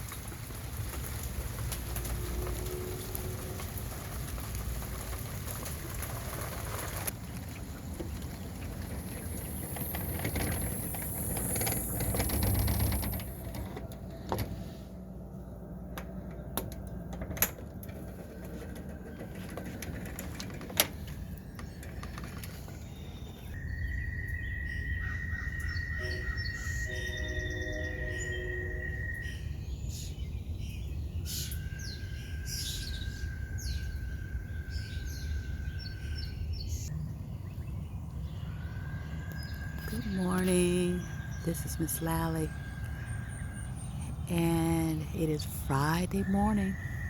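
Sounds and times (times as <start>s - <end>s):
rain falling: 0.0s - 13.7s.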